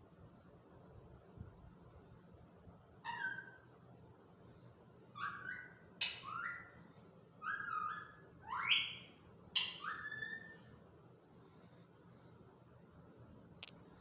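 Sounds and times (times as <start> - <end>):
parrot shrill calls: 3.0 - 3.6, 5.2 - 6.7, 7.4 - 10.6.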